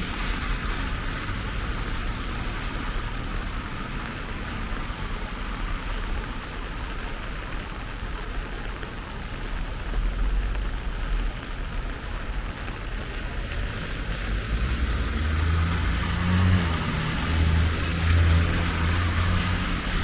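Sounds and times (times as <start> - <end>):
steady rain falling: 0.0 - 20.0
vehicle engine humming: 8.6 - 20.0.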